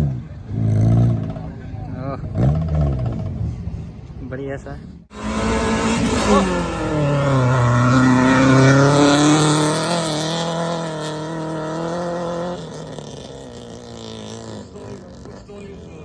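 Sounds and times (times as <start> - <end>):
race car engine running hard: 5.1 - 16.0.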